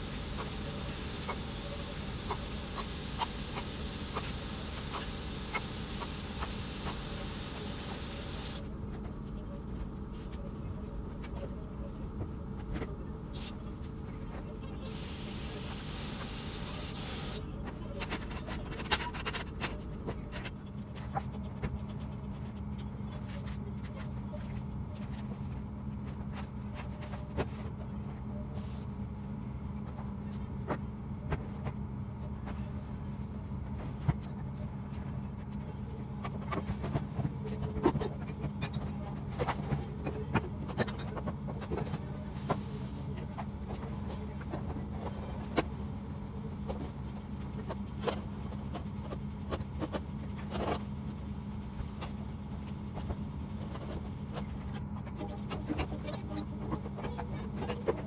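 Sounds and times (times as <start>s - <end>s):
hiss: 0.0s - 8.6s, 14.9s - 17.4s
steady low hum: 0.0s - 58.0s.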